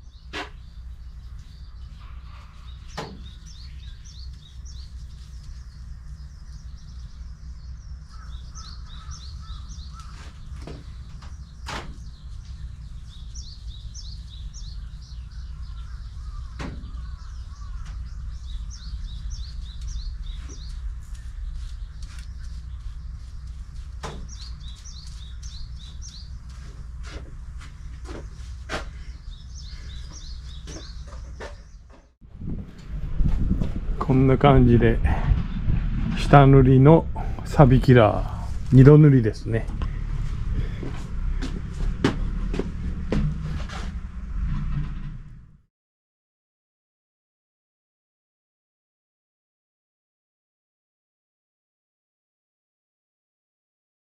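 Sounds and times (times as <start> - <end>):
small birds chirping: 0.0 - 32.2, 37.1 - 41.7
low outdoor rumble: 0.0 - 45.7.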